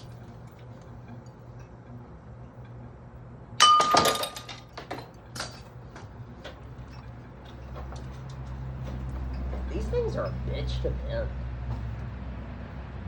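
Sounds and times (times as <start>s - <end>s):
loud crash with ringing clink: 3.6s - 4.7s
pieces clattering and rattling: 3.6s - 5.6s.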